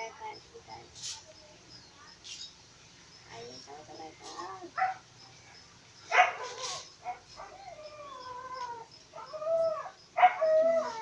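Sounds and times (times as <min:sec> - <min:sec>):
dog whining and whimpering: 0:07.4 - 0:11.0.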